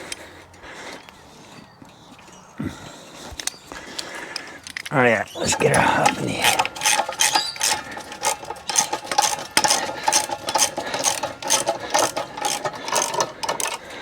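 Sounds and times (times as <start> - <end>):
jack ratcheting metal clicks: 3.2 - 14.0.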